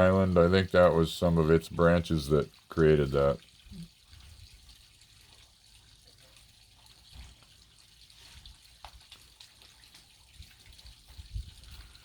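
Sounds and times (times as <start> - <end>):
faint trickling water: 0.0 - 12.0.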